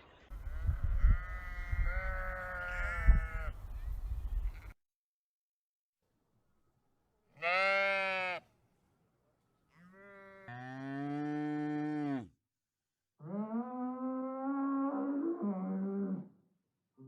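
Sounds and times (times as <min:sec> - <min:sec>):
cow mooing: 0:09.8 - 0:12.3.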